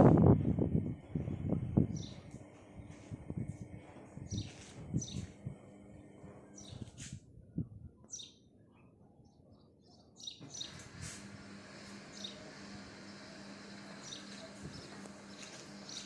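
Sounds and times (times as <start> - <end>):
outdoor background hum: 0.0 - 16.0
small birds chirping: 1.9 - 7.0, 7.9 - 11.0, 11.7 - 16.0.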